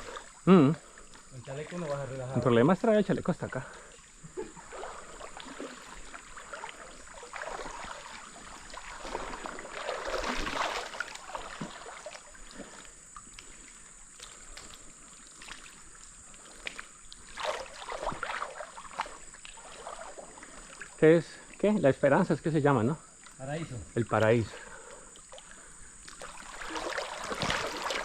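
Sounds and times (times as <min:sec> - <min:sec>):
steady rush of water: 0:00.0 - 0:28.0
water splashing and sloshing: 0:00.0 - 0:28.0.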